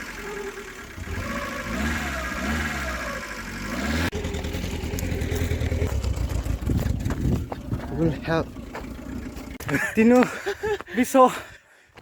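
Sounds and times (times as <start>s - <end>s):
vehicle engine revving under load: 0.0s - 9.6s.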